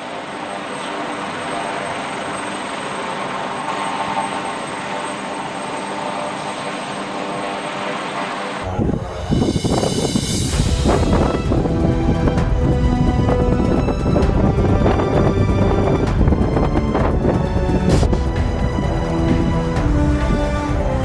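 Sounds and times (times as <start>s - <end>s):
aircraft engine noise: 0.0s - 21.0s
thin high whine: 0.0s - 21.0s
music: 8.6s - 21.0s.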